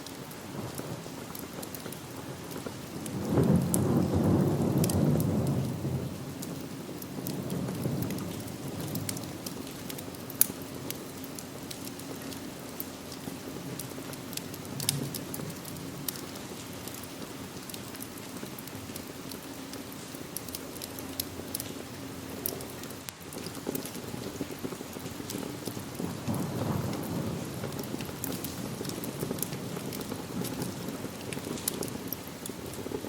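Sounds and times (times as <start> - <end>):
steady rain falling: 0.0 - 33.0
wood fire crackling and popping: 0.0 - 33.0
low rumble of thunder: 0.5 - 10.2, 14.5 - 18.0, 23.3 - 33.0.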